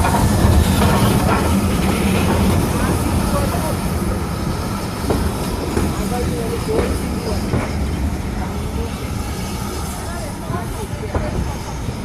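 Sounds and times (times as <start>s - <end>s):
wheels clanking over rail joints: 0.0s - 4.3s
steam train rumbling: 0.0s - 12.0s.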